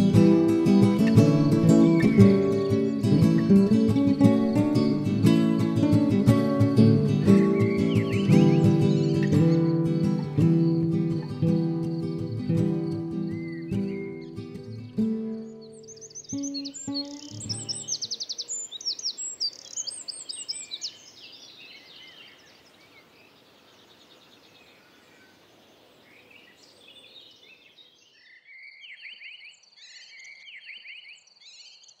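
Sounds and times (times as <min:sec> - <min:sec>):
bird trills: 0:00.0 - 0:23.1
background hiss: 0:00.0 - 0:28.0
songbirds chirping: 0:00.0 - 0:32.0.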